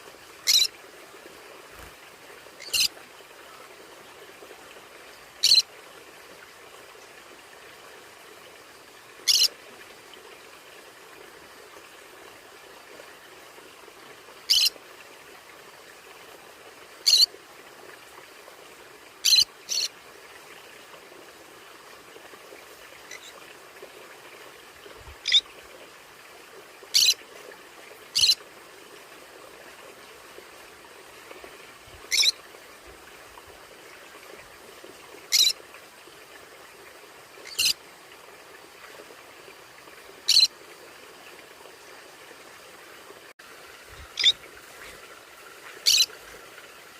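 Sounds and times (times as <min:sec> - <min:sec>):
parrot squawking: 0:00.5 - 0:00.7, 0:32.1 - 0:32.3, 0:44.2 - 0:44.4, 0:45.8 - 0:46.1.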